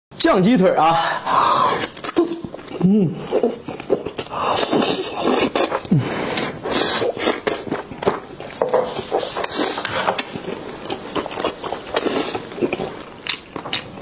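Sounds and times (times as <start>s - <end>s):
wet chewing and lip smacks: 3.5s - 14.0s.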